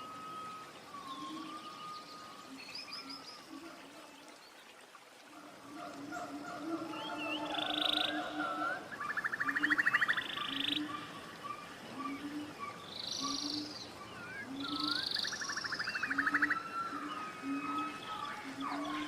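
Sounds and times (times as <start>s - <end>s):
birds trilling and whistling: 0.0s - 4.4s, 5.3s - 19.0s
frog calling: 5.7s - 19.0s.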